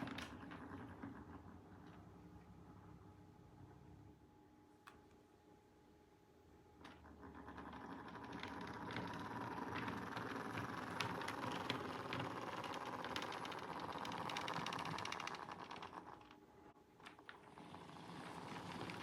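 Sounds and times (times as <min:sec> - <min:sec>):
model train wheels clicking: 0:06.9 - 0:16.4, 0:17.6 - 0:19.0.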